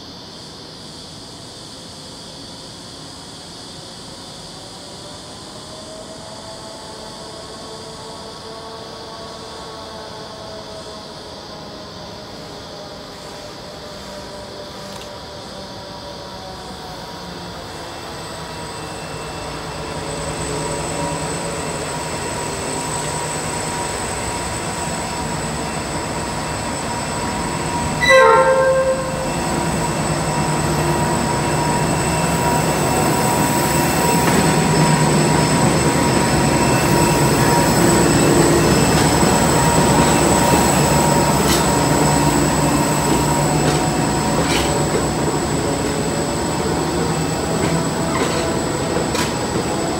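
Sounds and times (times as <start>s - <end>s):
freight train rumbling past: 16.1s - 49.9s
train horn blast: 28.0s - 30.0s
high ringing tones: 28.0s - 30.9s.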